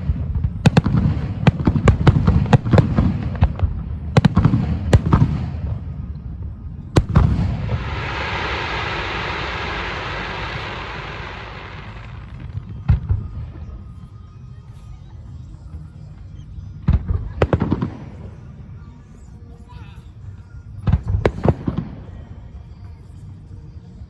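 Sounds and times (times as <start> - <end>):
fireworks booming bursts: 0.0 - 13.8
fireworks crackling hiss: 7.0 - 13.9.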